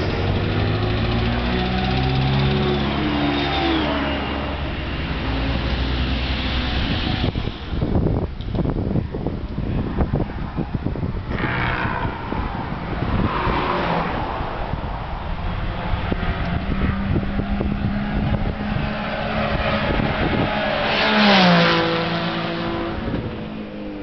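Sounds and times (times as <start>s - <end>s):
car engines running: 0.0s - 24.0s
car passing by: 11.4s - 23.3s.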